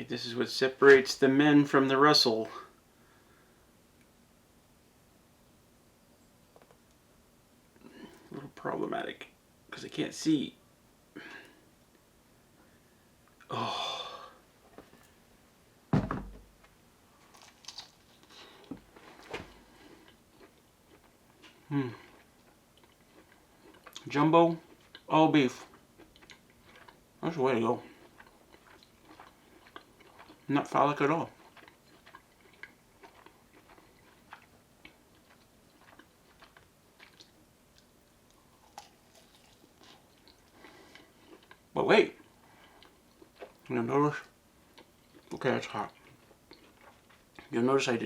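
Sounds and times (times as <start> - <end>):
solid knock: 15.9 - 16.4
sausages crackling and popping: 17.2 - 24.1.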